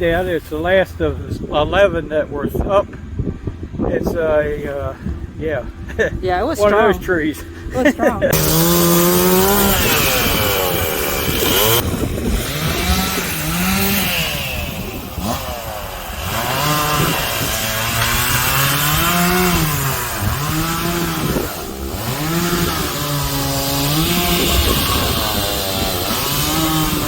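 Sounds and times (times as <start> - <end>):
chainsaw cutting tree: 8.3 - 27.0.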